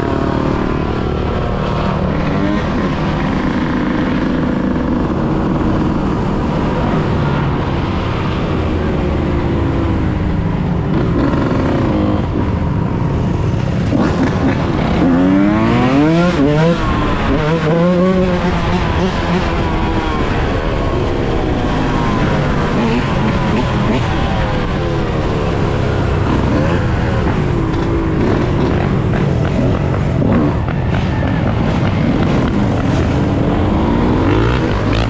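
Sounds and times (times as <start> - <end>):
dirt bike engine revving: 9.6 - 20.6, 25.4 - 35.0.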